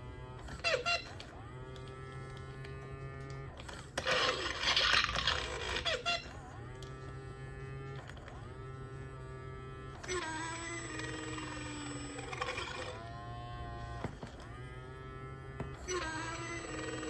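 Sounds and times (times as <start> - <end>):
low electronic hum: 0.0 - 17.0
toy dinosaur rough roar: 3.6 - 6.0, 10.0 - 13.1, 15.9 - 17.0
toy dinosaur pitched calls: 4.1 - 6.4, 10.0 - 13.0, 15.9 - 17.0.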